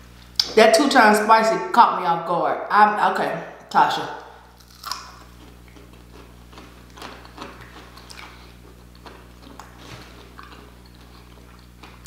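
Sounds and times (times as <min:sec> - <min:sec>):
low electrical hum: 0:00.0 - 0:12.0
wet mouth clicks chewing: 0:04.6 - 0:12.0.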